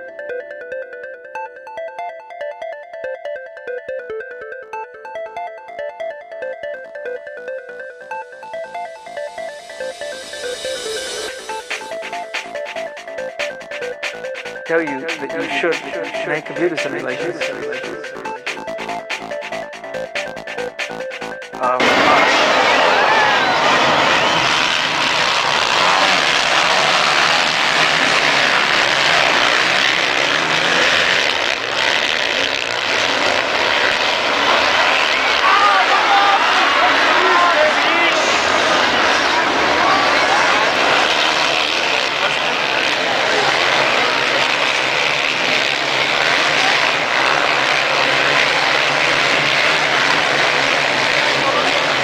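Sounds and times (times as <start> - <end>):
dirt-bike engines revving: 13.7 - 52.0.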